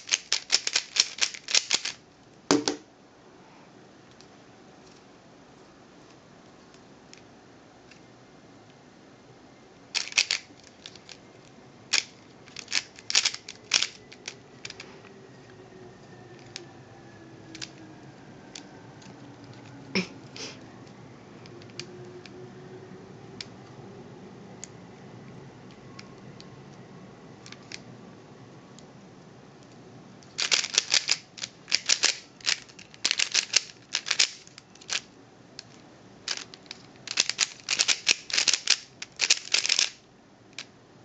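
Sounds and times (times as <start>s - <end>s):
puzzle cube pieces clicking: 0.0s - 2.0s, 10.0s - 11.2s, 11.9s - 14.8s, 30.3s - 35.0s, 35.6s - 40.0s.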